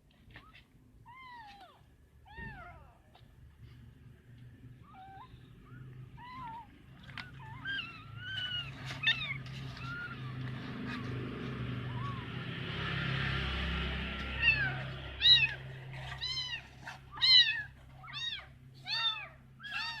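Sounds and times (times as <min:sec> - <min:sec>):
kitten meowing: 0:04.8 - 0:11.1, 0:11.8 - 0:12.4, 0:14.2 - 0:20.0
soft rustling: 0:06.2 - 0:12.2.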